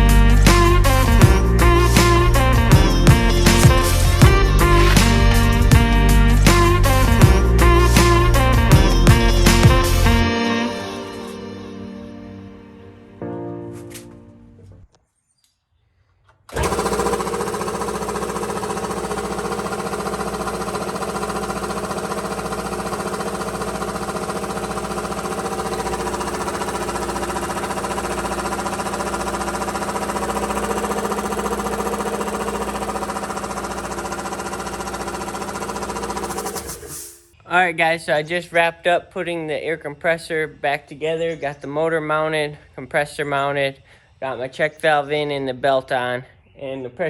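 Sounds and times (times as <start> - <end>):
air compressor chugging: 0.6 - 5.2, 16.5 - 37.3.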